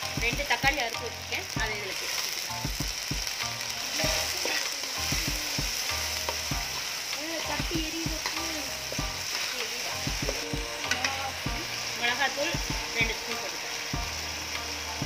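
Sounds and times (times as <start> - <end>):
tomatoes sizzling in hot oil: 0.0 - 15.0
metal ladle scraping a pan: 4.0 - 5.0.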